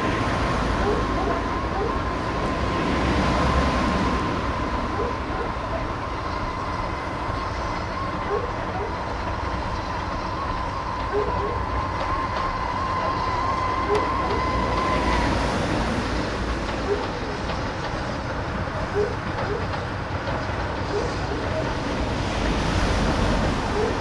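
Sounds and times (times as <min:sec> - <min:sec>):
steam train rumbling on track: 0:00.0 - 0:24.0.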